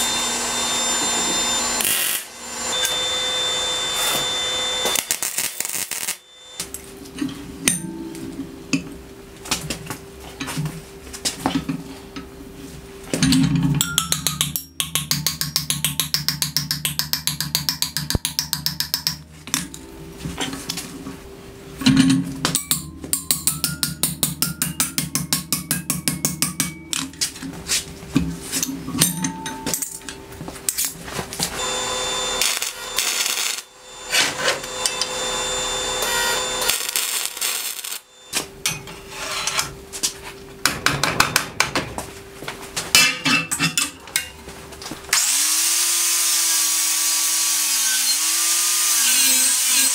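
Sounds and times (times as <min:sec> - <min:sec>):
hammer strikes on steel plate: 0:13.8 - 0:19.9, 0:22.0 - 0:27.1.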